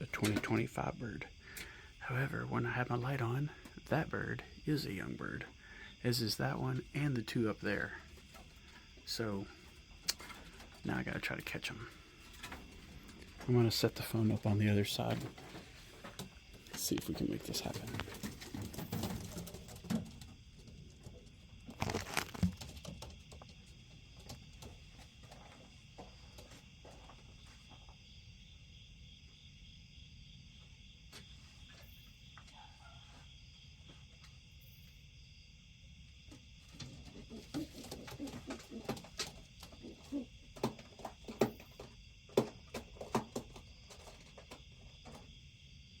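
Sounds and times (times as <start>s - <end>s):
pigeons flapping wings: 17.0s - 20.3s, 37.1s - 41.6s
small knocks: 36.7s - 45.3s.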